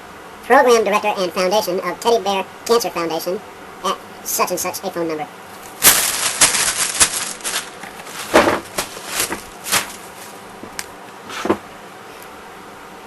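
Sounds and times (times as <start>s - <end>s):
newspaper pages rustling: 5.6s - 10.8s.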